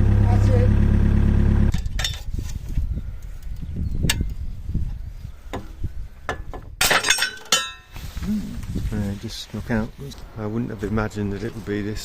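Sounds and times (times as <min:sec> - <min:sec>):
low uneven rumble: 0:00.0 - 0:03.2.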